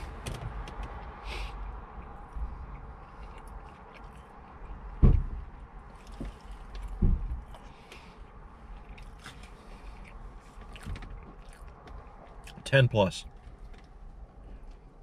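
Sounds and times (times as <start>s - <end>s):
chewing and biting food: 1.9s - 4.9s, 5.9s - 8.0s, 8.7s - 12.6s.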